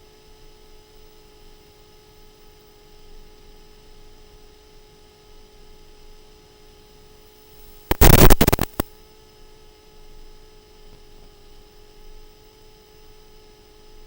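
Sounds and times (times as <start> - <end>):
choppy burst of noise: 7.9 - 8.8
faint electrical hum with tones: 7.9 - 8.8
sharp click: 7.9 - 8.8.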